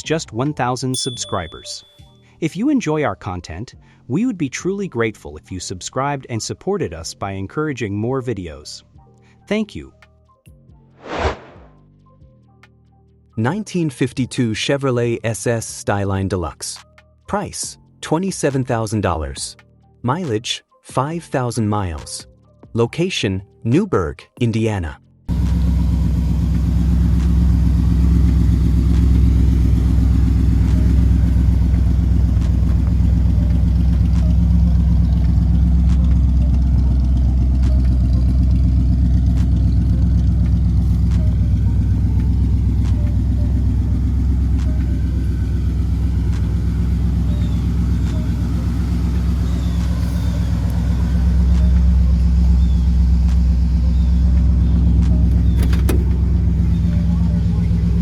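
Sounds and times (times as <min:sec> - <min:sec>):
car engine idling: 0:25.3 - 0:58.0.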